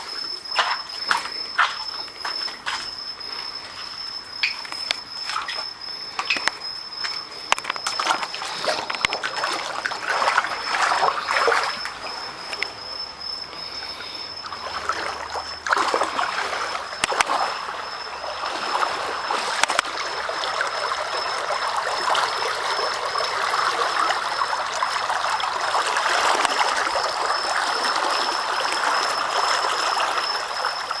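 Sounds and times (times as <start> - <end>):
floodwater rushing and splashing: 7.5 - 12.8, 13.6 - 31.0.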